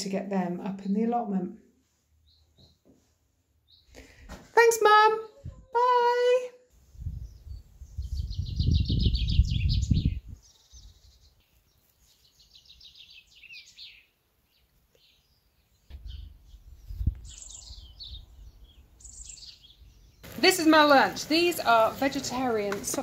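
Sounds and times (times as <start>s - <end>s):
songbirds singing: 3.6s - 4.1s, 7.0s - 23.0s.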